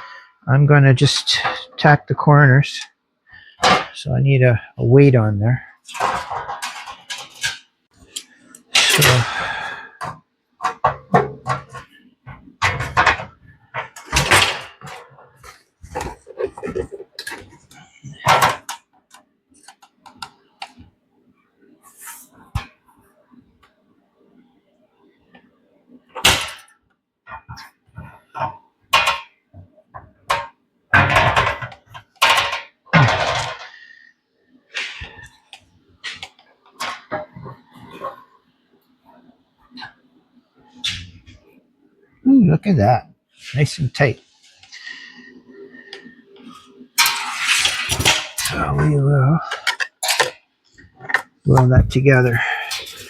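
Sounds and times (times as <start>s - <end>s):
metal parts clattering on workbench: 5.9s - 7.6s, 12.6s - 18.8s, 30.3s - 33.9s, 47.0s - 48.8s, 49.5s - 50.4s, 52.3s - 53.0s
metal pieces knocking and clanking: 30.3s - 33.8s, 47.0s - 48.7s, 49.5s - 50.4s.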